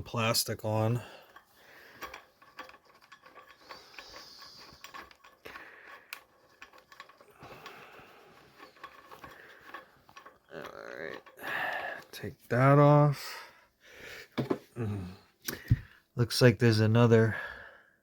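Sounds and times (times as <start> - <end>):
tools clinking on metal: 0.6 - 12.3.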